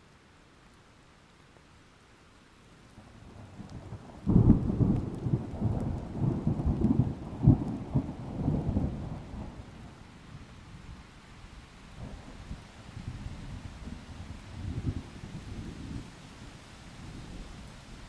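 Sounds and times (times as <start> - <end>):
light rain: 0.0 - 18.0
thunder rumbling: 3.4 - 10.0.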